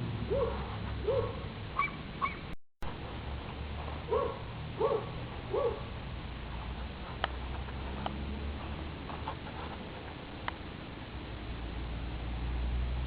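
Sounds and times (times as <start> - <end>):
small dog barking: 0.3 - 2.5, 4.1 - 6.0.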